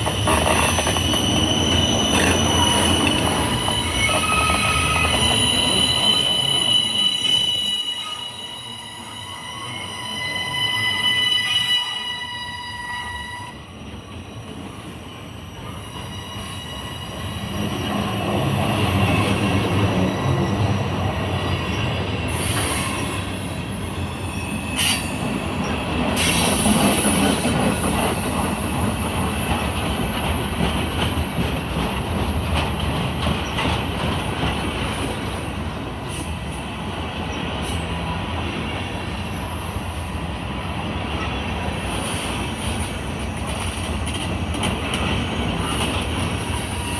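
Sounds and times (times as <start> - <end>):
train cars rolling on rails: 0.0 - 46.9
train horn: 2.6 - 13.8.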